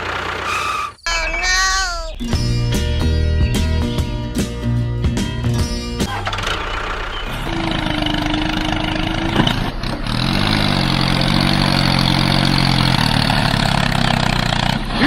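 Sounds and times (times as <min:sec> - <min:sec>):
small engine running: 0:00.0 - 0:01.0, 0:06.1 - 0:15.0.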